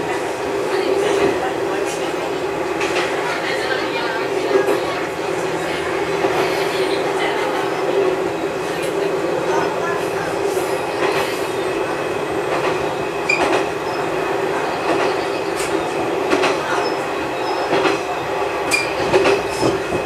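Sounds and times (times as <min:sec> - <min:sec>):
railcar engine drone: 0:00.0 - 0:20.0
high wheel squeaks: 0:13.2 - 0:16.0, 0:18.7 - 0:20.0.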